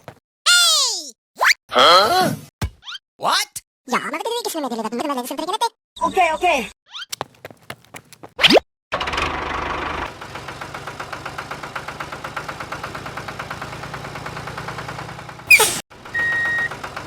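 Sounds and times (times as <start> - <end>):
small tractor engine chugging: 9.0 - 17.0
short rising whistle: 15.5 - 16.7.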